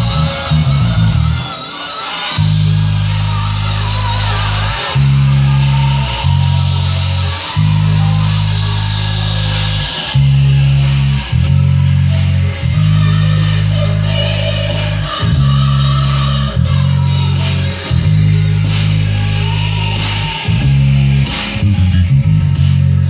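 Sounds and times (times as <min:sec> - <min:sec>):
electric bass guitar low notes: 0:00.0 - 0:01.6, 0:02.4 - 0:23.0
gospel music: 0:00.0 - 0:23.0
guitar: 0:00.0 - 0:23.0.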